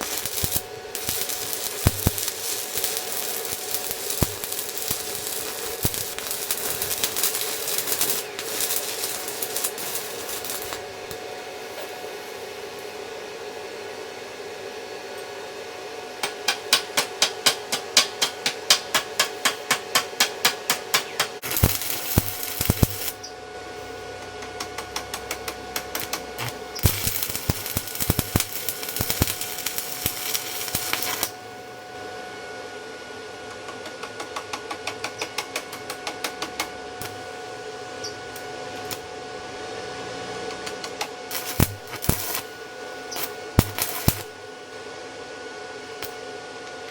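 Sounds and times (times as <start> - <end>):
welding arc crackling: 0.0 - 11.8, 16.2 - 23.3, 24.3 - 31.4, 38.2 - 39.1, 40.4 - 44.5
electrical hum: 0.0 - 46.9.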